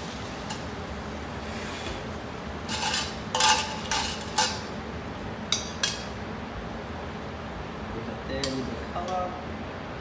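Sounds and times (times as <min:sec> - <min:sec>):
metal utensil scraping a pan: 0:02.7 - 0:04.7.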